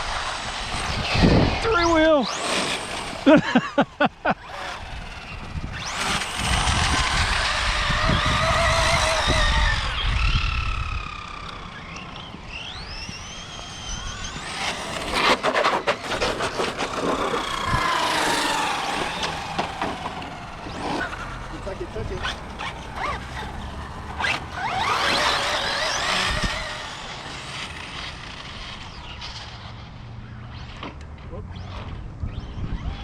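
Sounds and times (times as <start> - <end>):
electric motors whining: 0.0 - 33.0
tyres rushing on pavement: 13.6 - 29.5.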